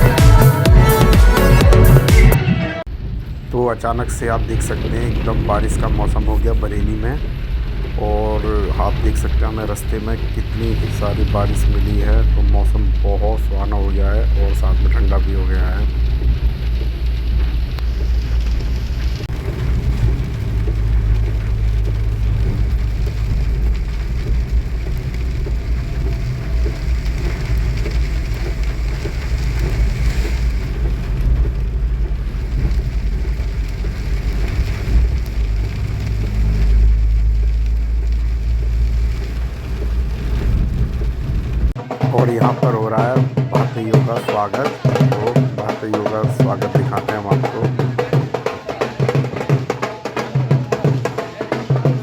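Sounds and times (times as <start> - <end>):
steady rain: 0.0 - 52.0
vehicle low rumble: 2.8 - 41.8.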